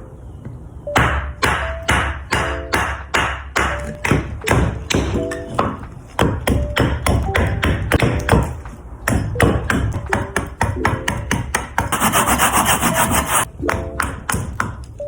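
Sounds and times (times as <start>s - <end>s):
hand tool scraping wood: 11.9s - 13.5s.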